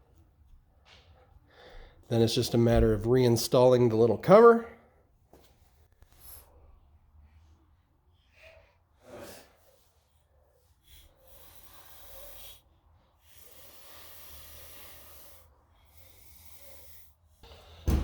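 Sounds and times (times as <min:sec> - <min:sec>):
hissy exhales: 0:10.8 - 0:17.9.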